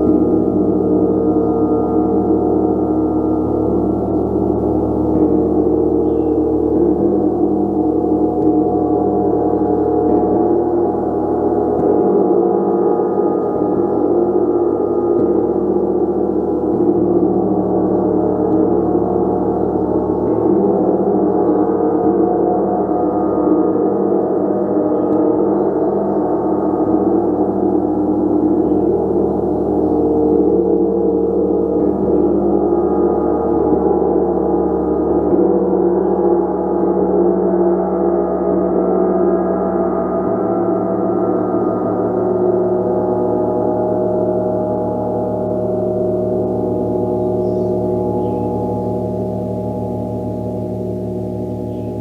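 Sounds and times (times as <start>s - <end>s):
gong ringing: 41.6s - 52.0s.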